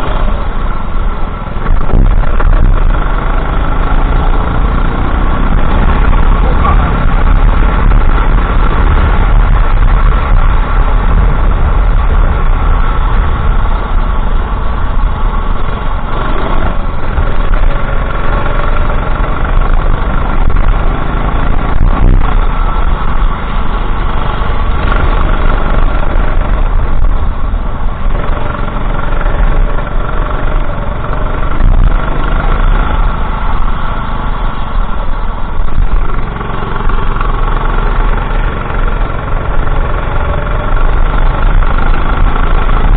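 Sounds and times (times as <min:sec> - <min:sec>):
go-kart engine racing: 0:00.0 - 0:42.9.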